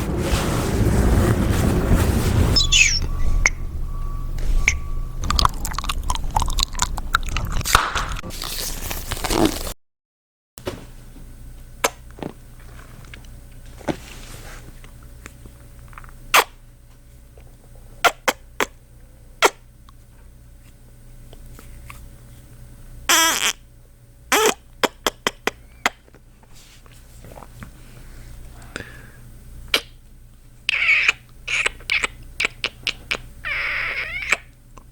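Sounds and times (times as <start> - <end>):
low rumble: 0.0 - 8.3
kissing and lip-smacking sounds: 16.3 - 16.5, 23.1 - 23.6, 24.3 - 26.0, 29.7 - 30.0, 30.7 - 34.5.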